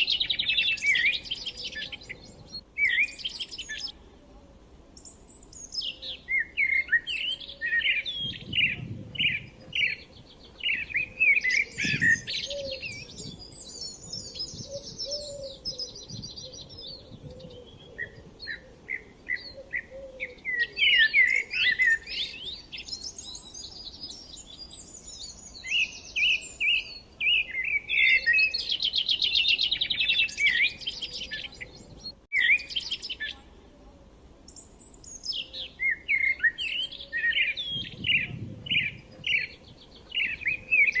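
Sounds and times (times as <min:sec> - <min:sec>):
songbirds chirping and trilling: 0:00.0 - 0:41.0.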